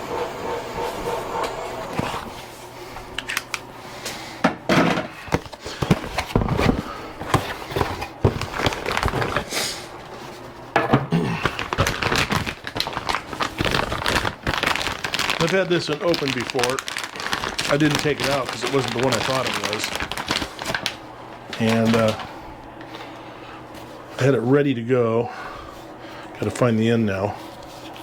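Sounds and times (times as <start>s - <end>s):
plastic packaging crinkling: 5.4s - 9.5s, 11.2s - 22.3s.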